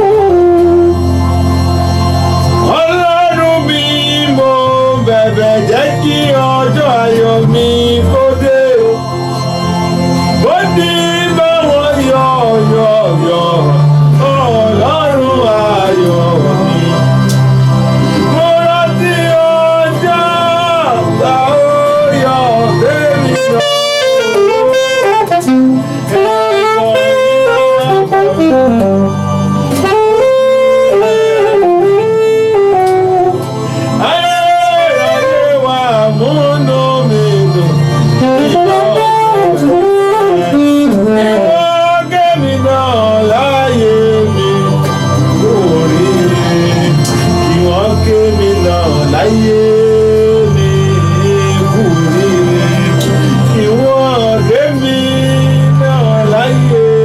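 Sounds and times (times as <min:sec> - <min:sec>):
low keyboard chords: 0:00.0 - 0:57.0
wind-like lead melody: 0:00.0 - 0:57.0.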